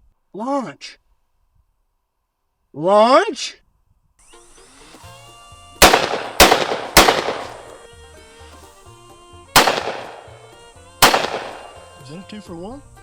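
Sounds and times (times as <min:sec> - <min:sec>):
shotgun shots with ringing echo: 0:05.8 - 0:07.9, 0:09.6 - 0:12.0.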